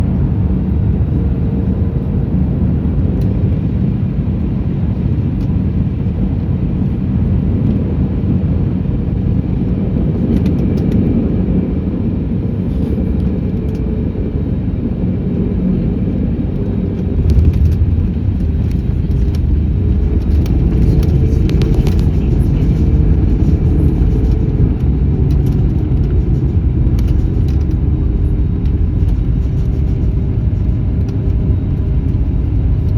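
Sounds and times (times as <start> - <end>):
airliner engine and airflow rumble: 0.0 - 32.9.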